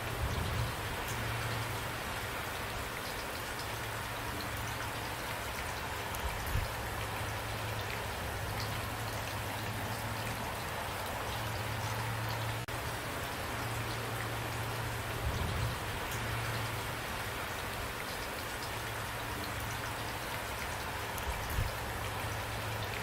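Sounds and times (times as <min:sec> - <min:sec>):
steady rain falling: 0:00.0 - 0:23.0
low steady rumble: 0:06.5 - 0:17.0.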